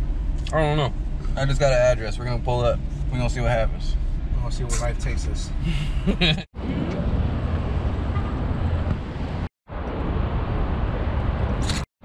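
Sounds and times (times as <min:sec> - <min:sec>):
road and engine rumble in car: 0:00.0 - 0:11.8.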